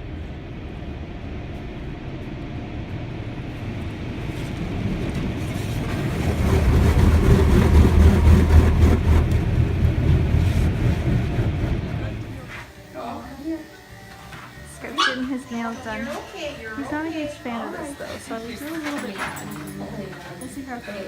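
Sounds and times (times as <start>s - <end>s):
car road noise rumble: 0.0s - 12.4s.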